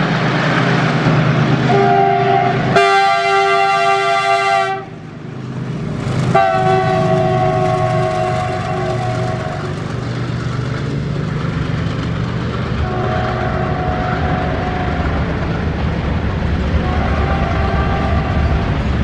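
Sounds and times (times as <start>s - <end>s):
train rumbling past: 0.0s - 19.0s
train horn blast: 1.7s - 5.0s, 6.3s - 9.8s, 12.8s - 15.3s, 16.8s - 18.8s.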